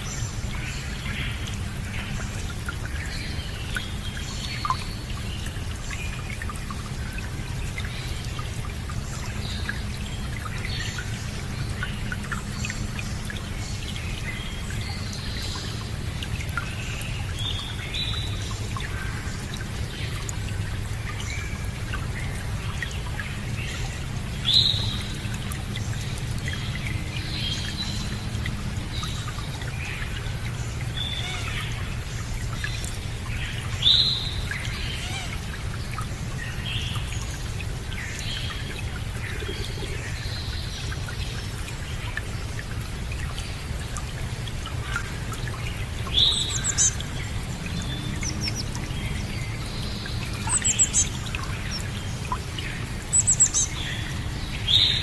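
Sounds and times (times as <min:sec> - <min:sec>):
running water: 0:00.0 - 0:55.0
small birds chirping: 0:44.7 - 0:55.0.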